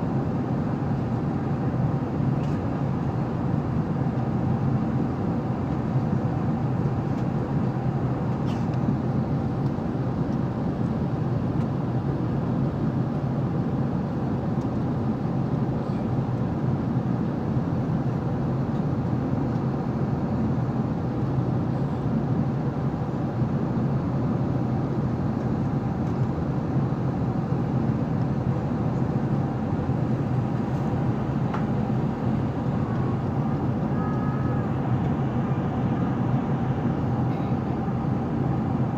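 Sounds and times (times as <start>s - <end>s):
airliner cabin noise: 0.0s - 38.9s.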